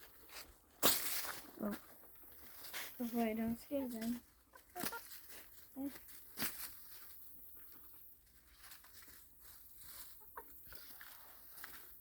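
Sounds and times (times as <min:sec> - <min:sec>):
chickens pecking crunchy rind: 0:03.8 - 0:12.0
chicken clucking softly: 0:10.0 - 0:10.6.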